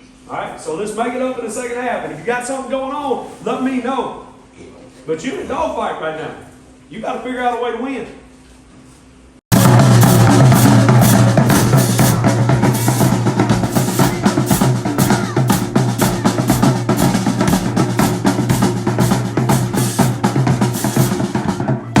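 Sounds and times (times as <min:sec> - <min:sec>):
drumline playing fast cadence: 0:09.5 - 0:22.0
steady low tone: 0:09.5 - 0:22.0.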